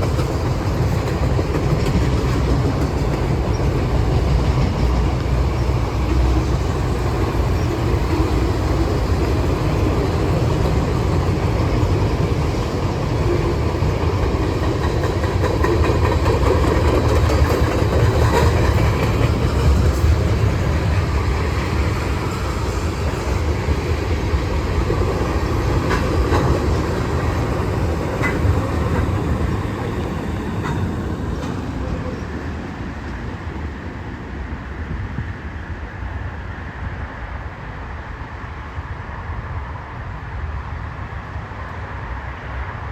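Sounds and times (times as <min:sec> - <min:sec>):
wheels clacking over rails: 0:00.0 - 0:32.2
freight train rumbling past: 0:00.0 - 0:42.9.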